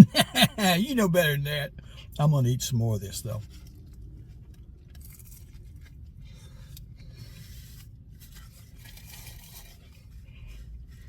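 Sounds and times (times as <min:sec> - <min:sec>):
rustling and crunching of eating: 0:03.3 - 0:11.0.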